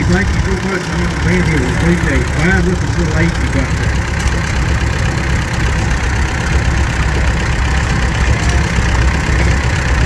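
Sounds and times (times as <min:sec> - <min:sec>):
tractor engine running: 0:00.0 - 0:10.0.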